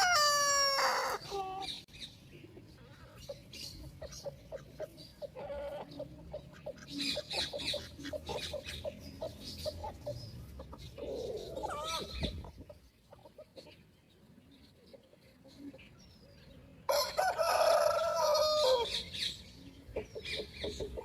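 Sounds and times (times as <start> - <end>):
chicken drawn-out call: 0.0 - 1.8, 16.9 - 19.0
chickens clucking: 0.0 - 21.0.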